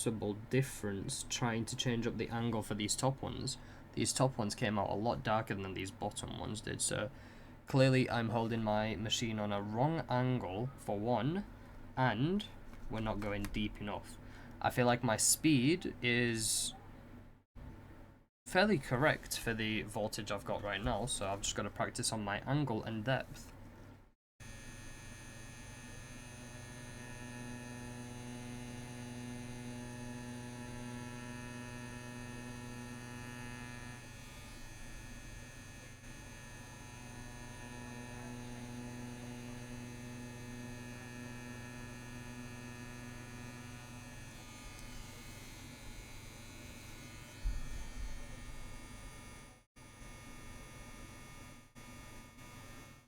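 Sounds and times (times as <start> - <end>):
tattoo machine buzzing: 24.4 - 53.0
short low thump: 47.4 - 48.2.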